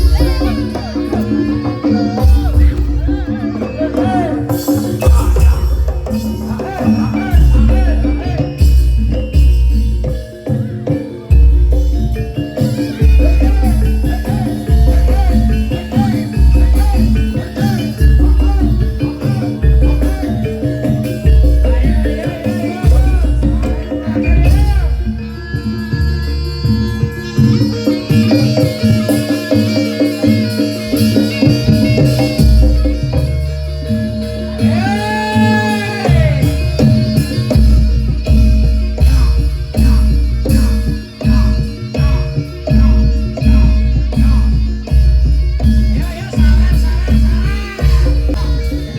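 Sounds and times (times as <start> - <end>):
drums: 0.0 - 48.9
melodic instruments: 0.0 - 48.9
shaker percussion: 0.0 - 48.9
heavy bass line: 31.8 - 48.9.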